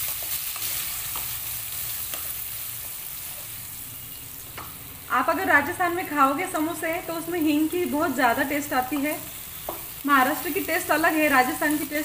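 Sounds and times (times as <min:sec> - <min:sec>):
spatula tapping and scraping pan: 0:00.0 - 0:01.4, 0:08.9 - 0:10.0
food sizzling in hot oil: 0:00.0 - 0:12.0.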